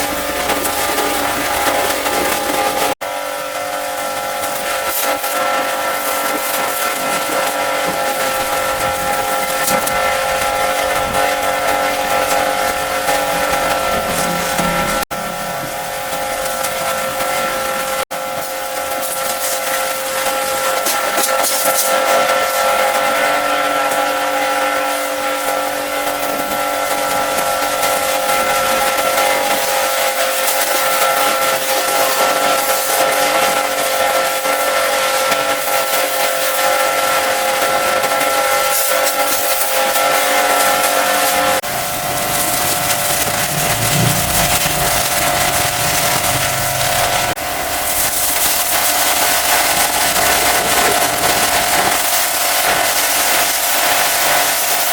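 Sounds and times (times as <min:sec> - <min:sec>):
pressure washer pump whine: 0:00.0 - 0:54.9
water jet hissing: 0:40.6 - 0:54.8.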